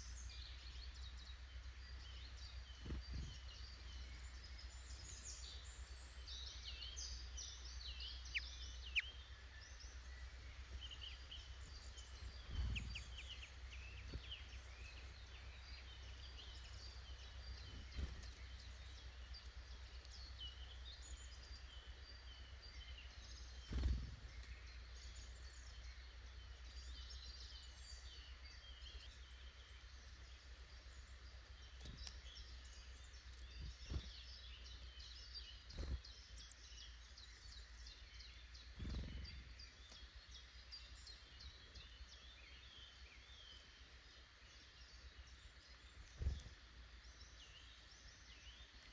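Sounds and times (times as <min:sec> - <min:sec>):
small birds chirping: 0:00.0 - 0:48.9
steady low rumble: 0:10.1 - 0:22.1.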